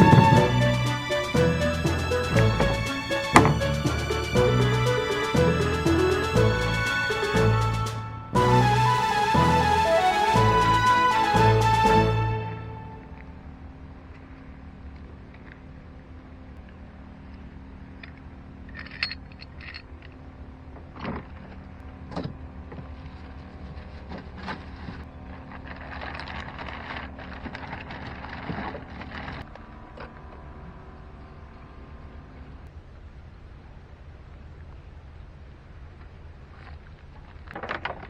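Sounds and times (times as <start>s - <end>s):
outboard motor running: 0.0s - 7.8s
rustling: 22.7s - 30.2s.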